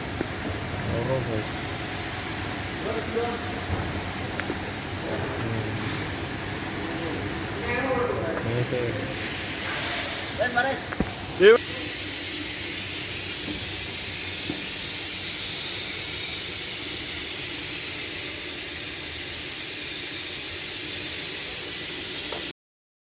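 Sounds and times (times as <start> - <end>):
steady hiss: 8.3 - 22.5.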